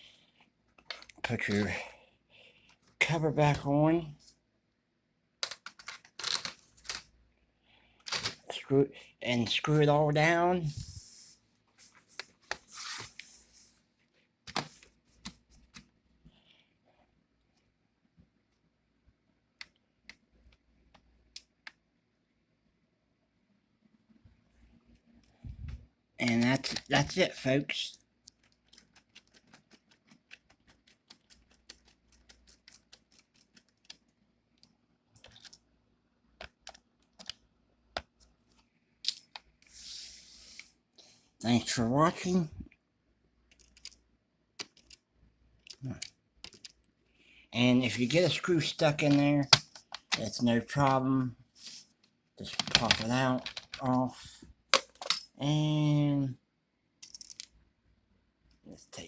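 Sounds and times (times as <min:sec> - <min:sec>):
laptop parts clicking: 0:05.4 - 0:07.1, 0:08.1 - 0:08.4, 0:28.3 - 0:35.6, 0:36.4 - 0:37.4, 0:43.5 - 0:44.0, 0:44.6 - 0:45.0, 0:45.6 - 0:46.8, 0:49.1 - 0:50.2, 0:52.4 - 0:53.9.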